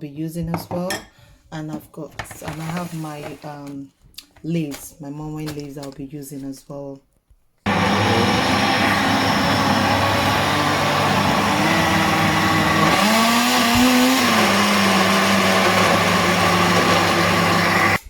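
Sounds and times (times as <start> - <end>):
blender running: 7.7 - 18.0.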